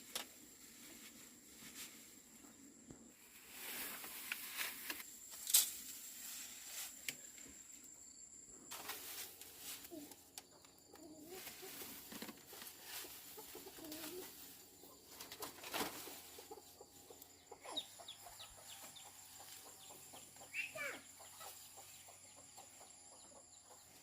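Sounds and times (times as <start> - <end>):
rustles and clicks: 0.0 - 7.6, 8.7 - 16.6
chickens clucking softly: 9.9 - 24.0.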